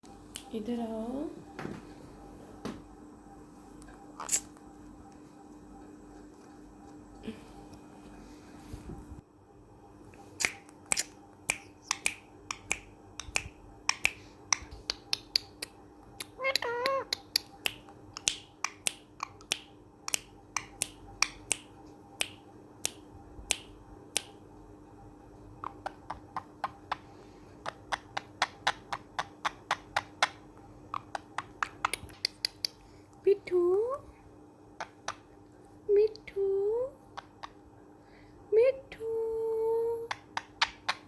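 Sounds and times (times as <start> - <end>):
parrot kissing sounds: 4.2 - 4.5, 10.4 - 21.7, 27.6 - 32.8
parrot warbling call: 16.4 - 17.2.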